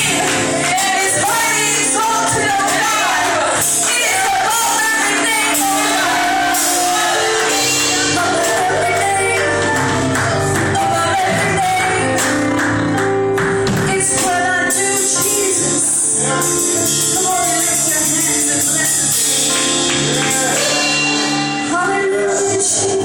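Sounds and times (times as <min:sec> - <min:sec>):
gospel singers: 0:00.0 - 0:12.8, 0:13.8 - 0:23.0
band playing: 0:00.0 - 0:23.0.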